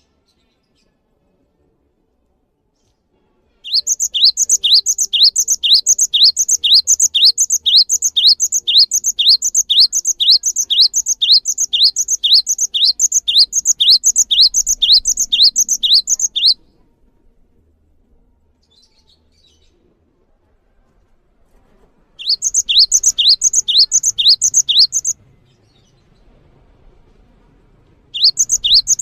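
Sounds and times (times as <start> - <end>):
songbird chirping: 3.7 - 16.7, 22.2 - 25.2, 28.2 - 29.0.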